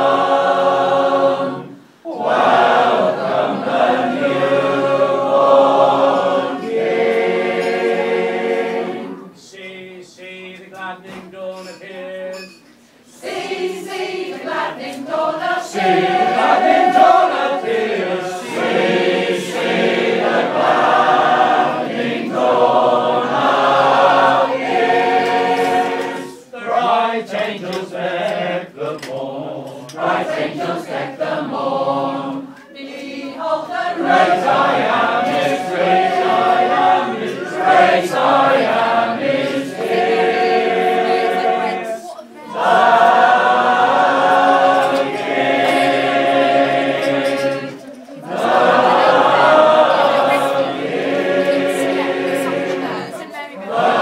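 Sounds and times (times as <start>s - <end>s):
choir singing a carol: 0.0s - 11.5s, 12.4s - 54.0s.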